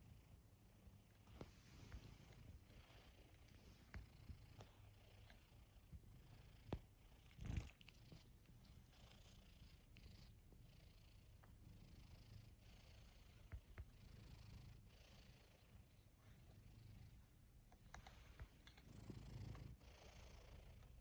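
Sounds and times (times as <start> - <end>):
cat purring: 0.0 - 21.0
small clicks: 17.7 - 19.6.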